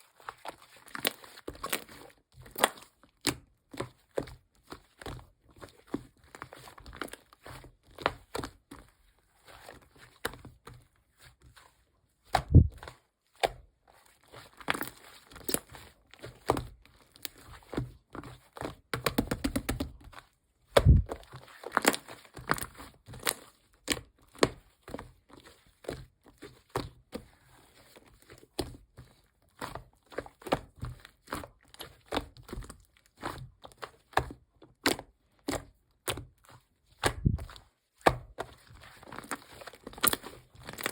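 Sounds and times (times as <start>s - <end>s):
heavy thuds: 20.8s - 21.1s.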